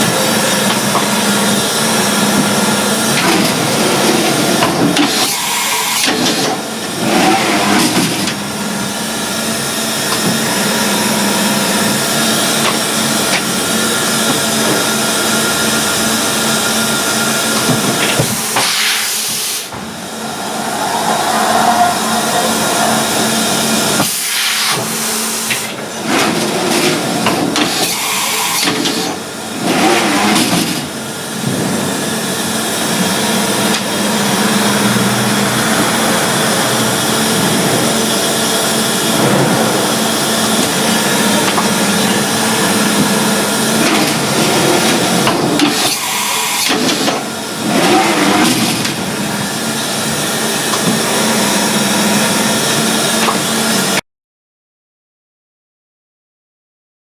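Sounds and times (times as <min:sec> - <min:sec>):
machining centre running: 0:00.0 - 0:54.0.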